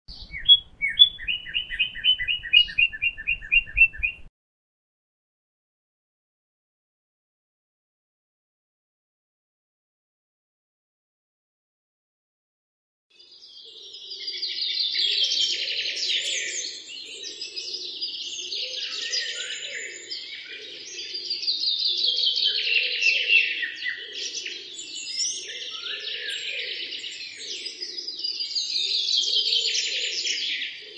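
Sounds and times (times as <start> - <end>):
birds chirping and twittering: 0.1 - 4.3, 13.2 - 30.9
lower repeating bird call: 0.1 - 4.3.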